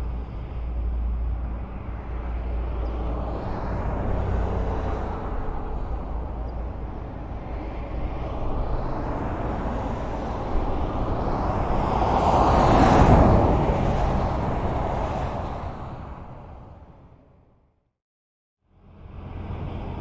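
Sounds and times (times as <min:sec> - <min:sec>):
highway traffic rumble: 0:00.0 - 0:17.8, 0:18.7 - 0:20.0
vehicle passing close: 0:01.4 - 0:17.2.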